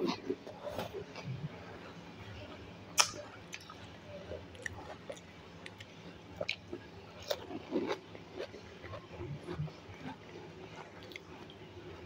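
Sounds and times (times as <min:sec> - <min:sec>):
wet chewing and mouth smacks: 0:04.5 - 0:10.2, 0:10.8 - 0:11.6.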